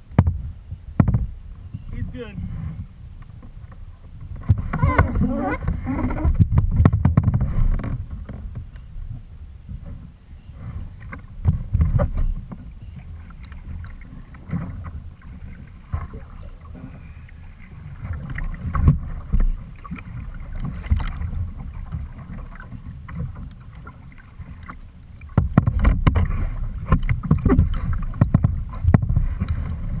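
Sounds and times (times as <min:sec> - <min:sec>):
knocks against kayak hull: 0:00.1 - 0:01.3, 0:04.4 - 0:08.6, 0:11.1 - 0:12.7, 0:24.6 - 0:29.6
water lapping and sloshing: 0:00.7 - 0:30.0
water splashes: 0:10.4 - 0:30.0.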